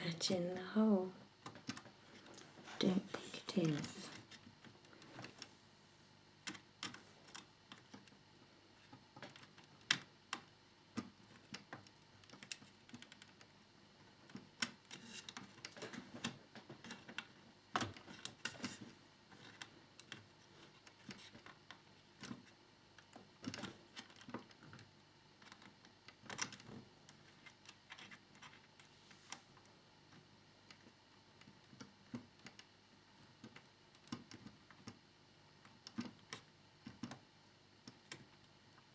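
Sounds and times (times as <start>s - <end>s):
plastic parts clicking and tapping: 35.6s - 37.2s.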